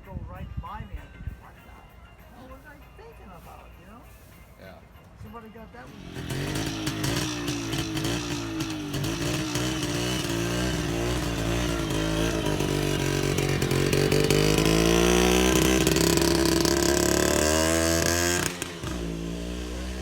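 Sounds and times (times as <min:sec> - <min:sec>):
motorcycle engine running: 0:05.8 - 0:20.0.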